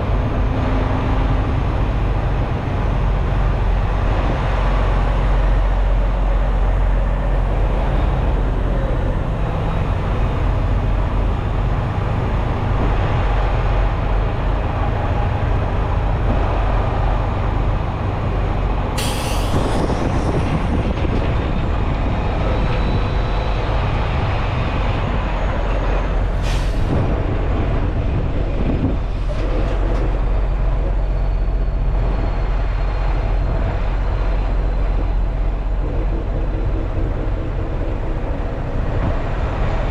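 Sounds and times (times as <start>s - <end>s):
truck diesel engine rumble: 0.0s - 39.9s
air brake hisses: 19.0s - 20.4s, 26.4s - 26.9s.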